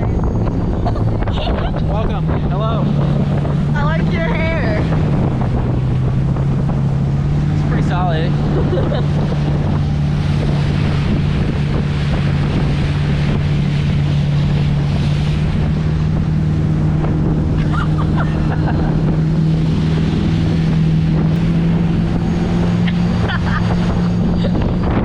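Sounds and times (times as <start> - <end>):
motorboat engine running: 0.0 - 25.0
water rushing past: 0.0 - 25.0
wind buffeting microphone: 0.0 - 25.0.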